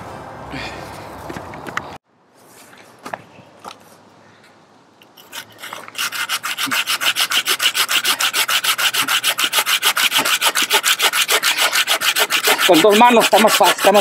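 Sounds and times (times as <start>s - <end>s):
hand saw cutting wood: 5.2s - 14.0s.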